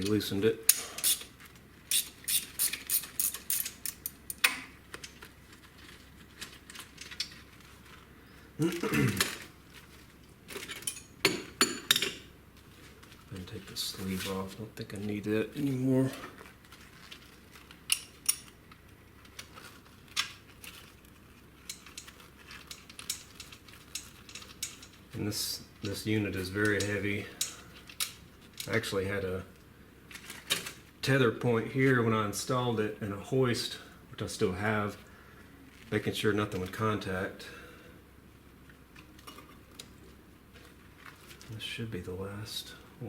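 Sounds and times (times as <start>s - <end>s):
ratchet wrench clicking: 0.7s - 1.3s, 1.9s - 4.5s.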